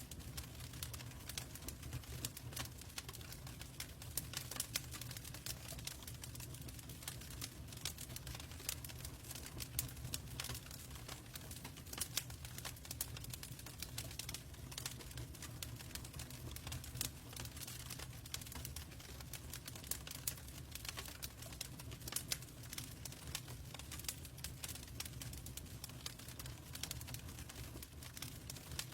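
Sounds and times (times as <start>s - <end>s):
log fire crackling and popping: 0.0s - 28.9s
low rumble of burning: 0.0s - 28.9s.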